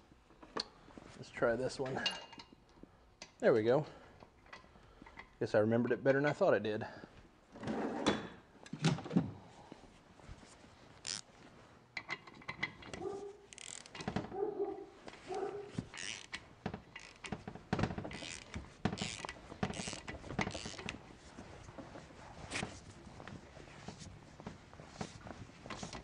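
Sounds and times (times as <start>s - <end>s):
ratcheting wrench clicking: 11.0s - 11.2s, 13.5s - 14.1s, 15.9s - 17.4s, 18.1s - 20.9s.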